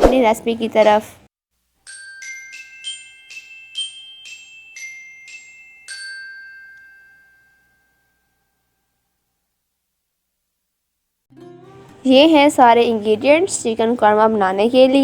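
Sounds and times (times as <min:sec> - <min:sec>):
glockenspiel jingle: 0:01.8 - 0:08.8.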